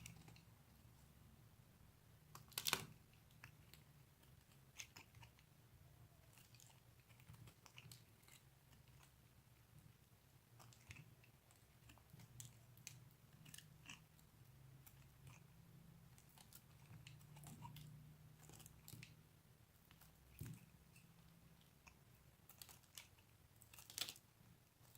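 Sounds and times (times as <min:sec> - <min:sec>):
bar soap being cut and crunched: 0:02.3 - 0:03.1, 0:22.4 - 0:24.9.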